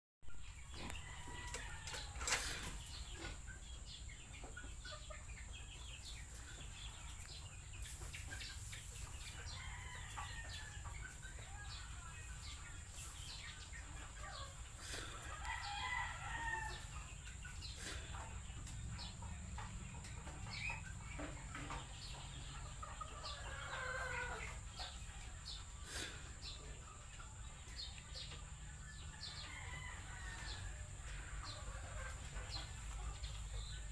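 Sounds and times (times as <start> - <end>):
chickens clucking: 0.2 - 33.9
rooster crowing: 15.4 - 16.9, 29.4 - 30.9.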